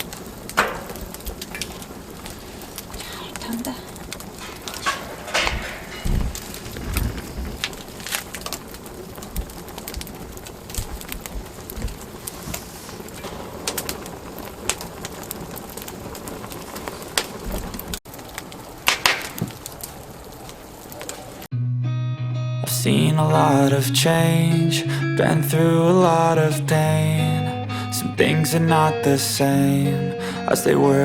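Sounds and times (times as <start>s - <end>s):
fire hiss: 0.0s - 21.5s, 23.4s - 31.0s
wood fire crackling and popping: 0.0s - 21.5s.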